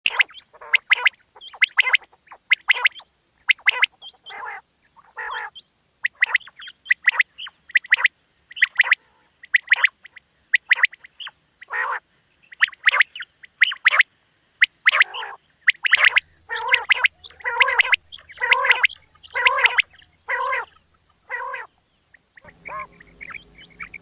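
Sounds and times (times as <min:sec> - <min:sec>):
quail calling: 0:00.1 - 0:24.0.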